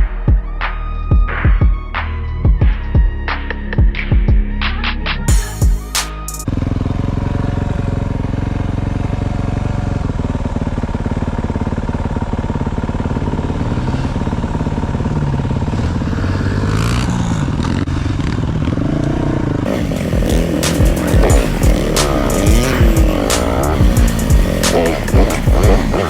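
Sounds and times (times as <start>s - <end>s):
dirt bike engine revving: 5.4s - 26.0s.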